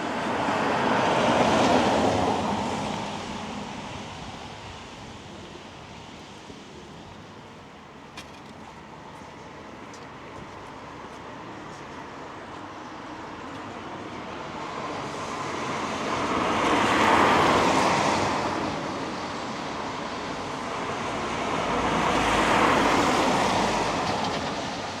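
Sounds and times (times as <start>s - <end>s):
tyres hissing on wet road: 10.2s - 25.0s.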